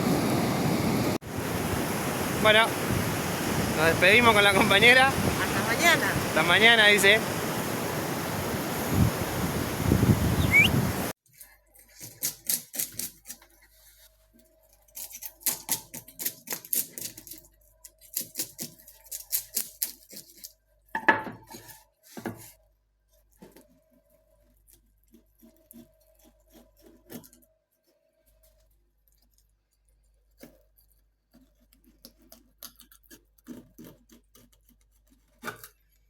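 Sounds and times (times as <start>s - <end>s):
surf: 0.0s - 11.1s
wind: 0.0s - 13.6s.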